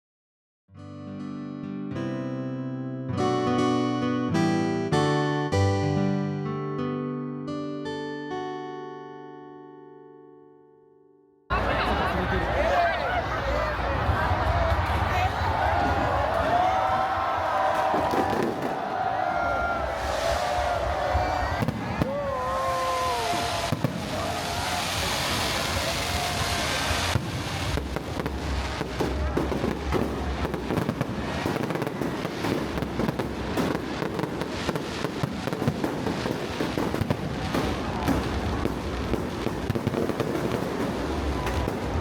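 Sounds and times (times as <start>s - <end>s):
fireworks bangs and crackling: 11.6s - 42.0s.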